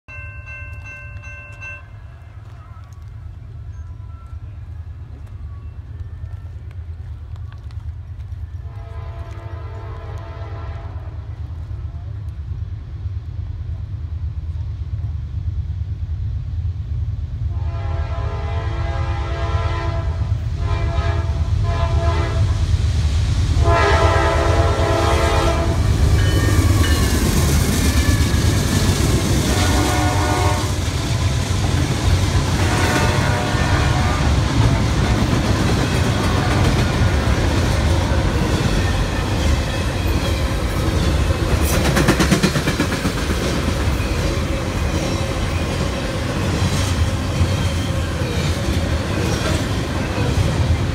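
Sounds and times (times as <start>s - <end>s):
diesel locomotives passing: 0.1s - 50.9s
locomotive horn blasts: 8.6s - 11.2s, 17.5s - 22.6s, 23.6s - 26.0s, 29.4s - 30.9s, 32.6s - 34.6s
wheels clacking over rail joints: 34.2s - 50.9s.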